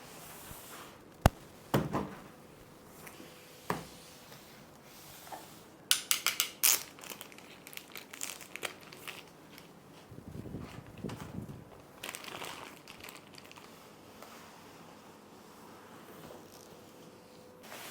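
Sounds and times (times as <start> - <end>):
packaging crinkling: 6.2 - 9.8, 10.8 - 13.8
light packaging rustling: 6.3 - 13.9.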